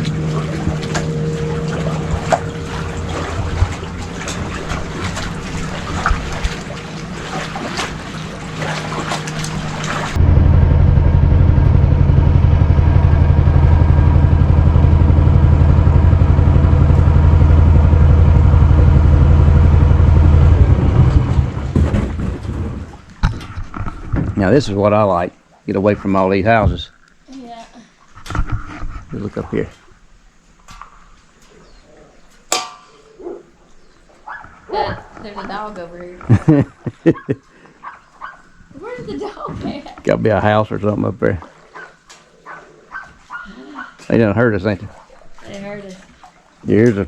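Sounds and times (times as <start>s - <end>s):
small gasoline engine running: 0.0s - 6.0s, 8.5s - 21.6s
water noise: 0.0s - 47.0s
wind: 0.0s - 47.0s.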